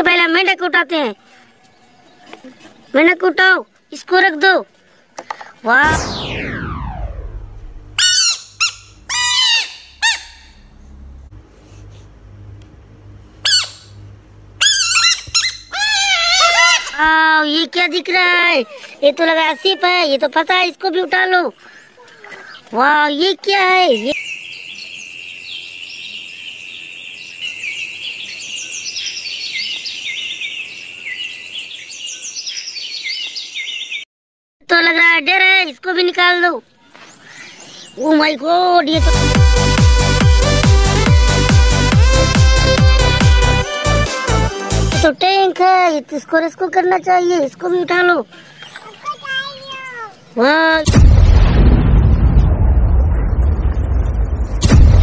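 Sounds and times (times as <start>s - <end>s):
high-pitched squeaks: 8.0s - 10.8s, 13.4s - 14.0s, 14.6s - 17.0s
faint low hum: 8.8s - 16.3s
birds chirping and singing: 23.8s - 34.0s, 48.3s - 50.4s.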